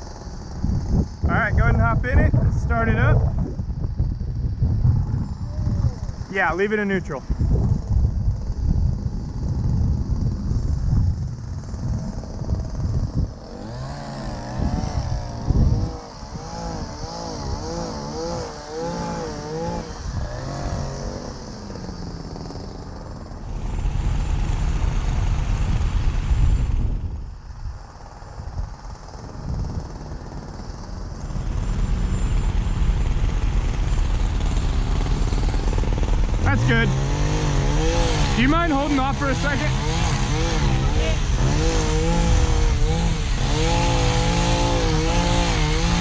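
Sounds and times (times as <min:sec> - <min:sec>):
wavering whine: 0:01.6 - 0:06.3, 0:22.8 - 0:29.4, 0:30.7 - 0:46.0
truck engines running: 0:29.4 - 0:46.0.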